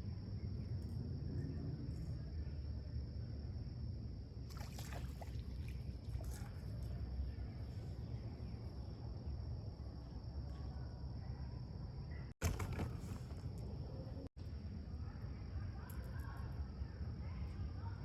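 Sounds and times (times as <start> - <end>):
clicks and rustles: 12.4 - 14.0.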